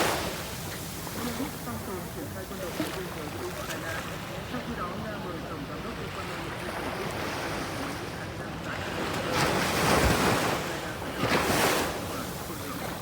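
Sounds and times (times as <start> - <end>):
surf washing on shore: 0.0 - 13.0.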